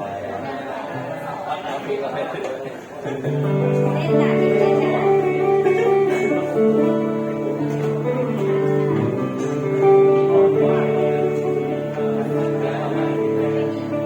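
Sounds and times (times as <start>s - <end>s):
acoustic guitar melody: 3.2s - 14.0s.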